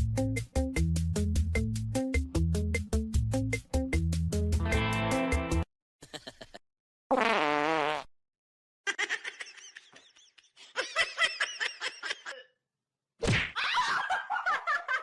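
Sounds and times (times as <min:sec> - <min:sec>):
person laughing: 0:06.0 - 0:06.6, 0:08.9 - 0:12.6, 0:13.6 - 0:15.0.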